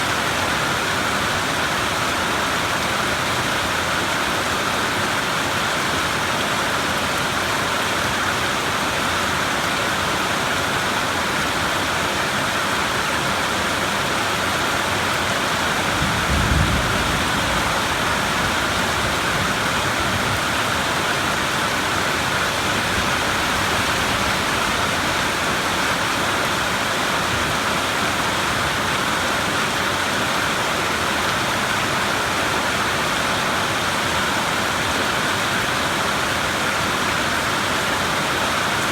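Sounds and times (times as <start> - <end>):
heavy rain falling: 0.0 - 38.9
low rumble of thunder: 15.6 - 21.5.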